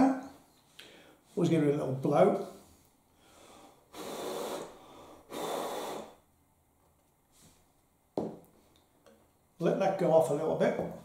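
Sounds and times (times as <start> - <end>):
person blowing puffs of breath: 3.2 - 6.2.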